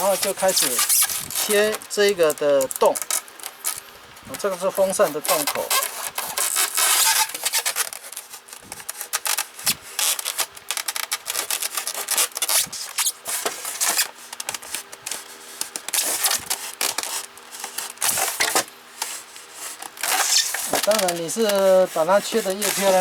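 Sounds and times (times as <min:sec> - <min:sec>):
knife sawing through foam: 0:00.0 - 0:01.7, 0:19.1 - 0:23.0.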